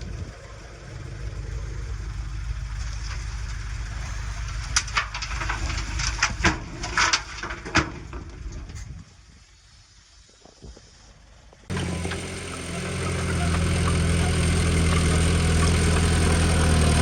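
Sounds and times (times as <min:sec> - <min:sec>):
heavy diesel engine running: 0:00.0 - 0:07.8, 0:11.7 - 0:17.0.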